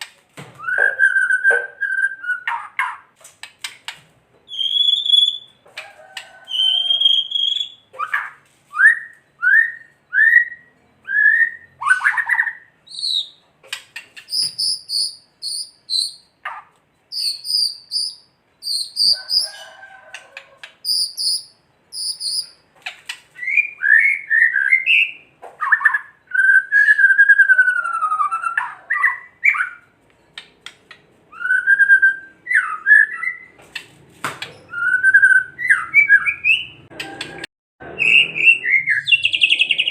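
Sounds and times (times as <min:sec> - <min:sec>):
bird singing loud whistled phrases: 0:00.6 - 0:02.9, 0:04.5 - 0:05.6, 0:06.5 - 0:13.4, 0:14.2 - 0:16.4, 0:17.1 - 0:19.6, 0:20.8 - 0:22.6, 0:23.4 - 0:29.9, 0:31.3 - 0:33.5, 0:34.6 - 0:36.8, 0:38.0 - 0:39.9.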